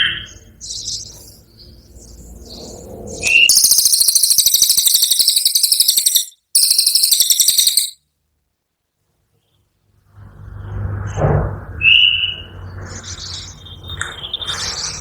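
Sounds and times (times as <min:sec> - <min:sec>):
songbird high-pitched rattling trill: 0:03.5 - 0:08.0.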